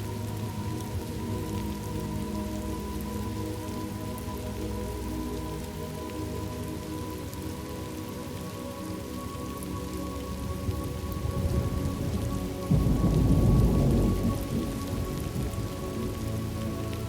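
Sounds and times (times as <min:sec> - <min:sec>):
steady rain: 0:00.0 - 0:17.0
thunder rumbling: 0:10.5 - 0:16.2.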